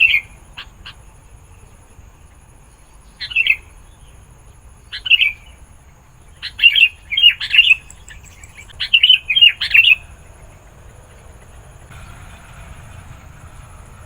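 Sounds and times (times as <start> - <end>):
bulbul singing: 6.5 - 14.0.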